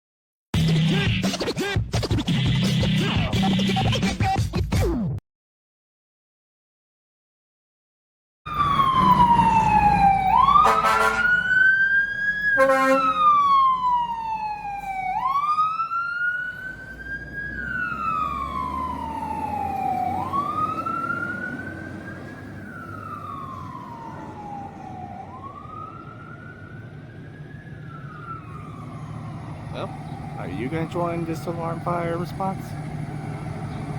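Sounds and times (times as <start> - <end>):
fire truck siren wailing: 8.5 - 33.9
air horn blasts: 10.6 - 11.4, 12.6 - 13.3.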